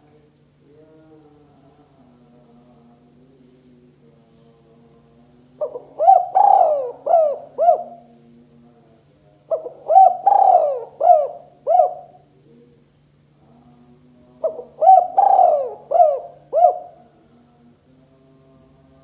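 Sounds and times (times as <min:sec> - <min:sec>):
dove cooing: 0:05.6 - 0:08.1, 0:09.5 - 0:12.2, 0:14.4 - 0:17.1.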